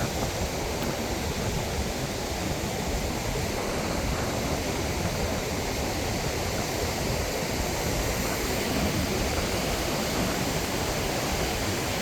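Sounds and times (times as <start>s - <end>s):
ocean surf: 0.0s - 12.0s
wind buffeting microphone: 0.0s - 12.0s.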